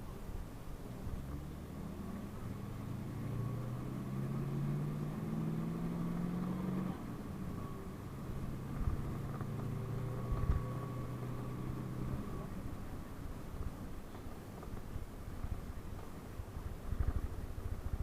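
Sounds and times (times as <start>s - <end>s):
bus engine running: 0.0s - 18.0s.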